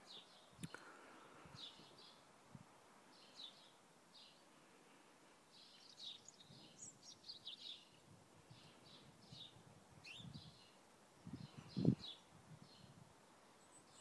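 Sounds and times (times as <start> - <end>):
birds chirping: 3.1 - 4.8, 5.5 - 14.0.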